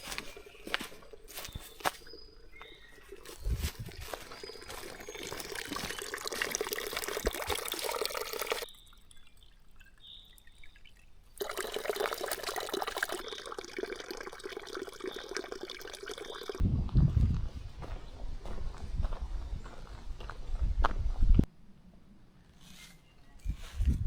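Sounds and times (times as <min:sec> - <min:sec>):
trickling water: 0:00.0 - 0:16.6.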